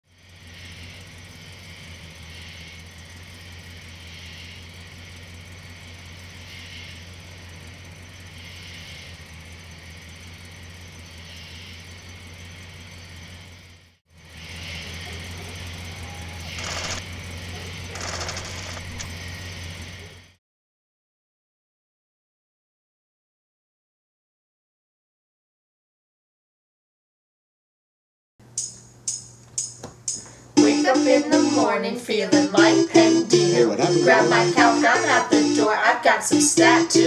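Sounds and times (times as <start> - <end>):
car engine idling: 0.0 - 20.4, 28.4 - 37.0
loud bursts: 15.8 - 19.9
high chirring: 28.6 - 37.0.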